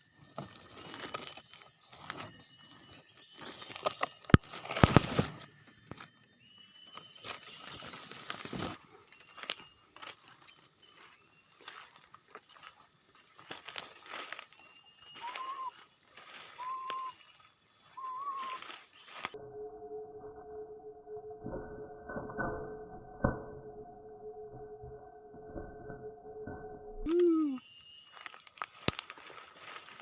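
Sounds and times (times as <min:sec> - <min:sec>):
high-pitched insect drone: 0:00.0 - 0:21.5, 0:23.8 - 0:30.0
leaves or twigs crunching: 0:00.4 - 0:06.1, 0:07.0 - 0:19.4, 0:27.1 - 0:30.0
whistled bird notes: 0:13.3 - 0:19.4, 0:27.0 - 0:28.4.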